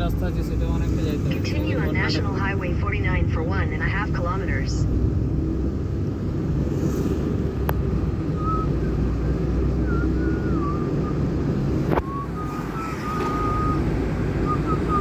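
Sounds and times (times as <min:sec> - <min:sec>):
car engine and tyres rumbling: 0:00.0 - 0:15.0
faint wavering whistle tone: 0:08.3 - 0:09.0, 0:09.7 - 0:11.3, 0:11.9 - 0:15.0.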